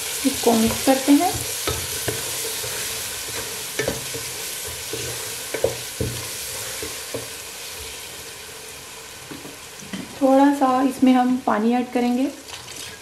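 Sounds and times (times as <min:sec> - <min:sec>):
masala sizzling in oil: 0:00.0 - 0:13.0
spatula knocking and scraping pot: 0:00.6 - 0:07.4.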